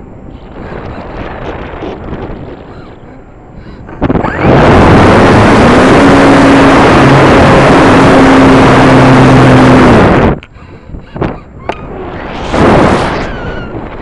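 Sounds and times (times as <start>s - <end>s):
model plane motor drone: 4.1s - 10.5s
rush of airflow: 11.9s - 14.0s.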